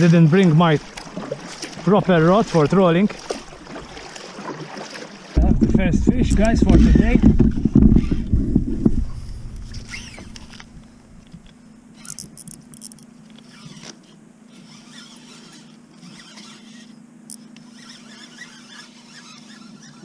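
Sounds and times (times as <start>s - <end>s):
scrapes and rattles: 5.4s - 14.0s
faint steady hum: 5.4s - 18.5s
fishing reel winding: 12.0s - 20.0s.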